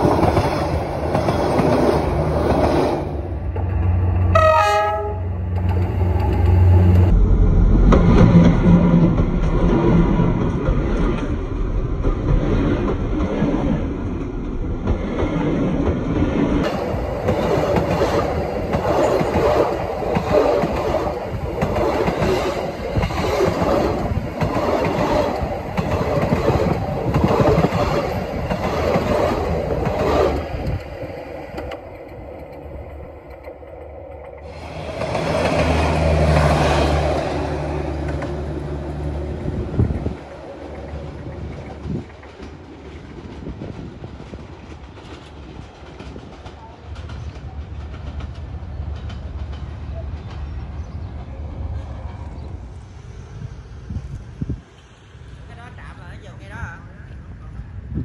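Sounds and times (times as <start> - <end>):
train wheels rumbling on rails: 0.0 - 58.0
low hum: 5.2 - 16.6
rail joint clatter: 39.7 - 51.3.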